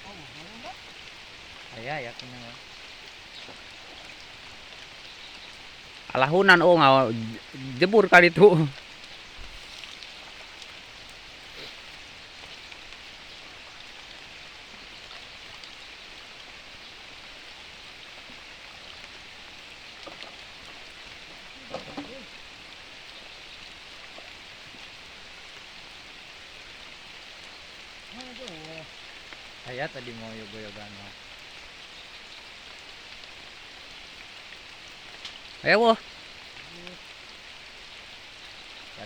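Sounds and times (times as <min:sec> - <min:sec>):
faint voice: 0:00.0 - 0:00.8, 0:28.1 - 0:28.9, 0:36.6 - 0:37.0
steady rain falling: 0:00.0 - 0:39.0.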